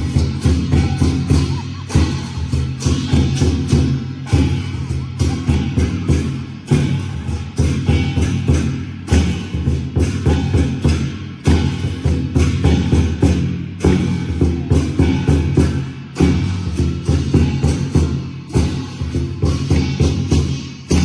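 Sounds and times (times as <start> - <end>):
percussion-driven music: 0.0 - 21.0.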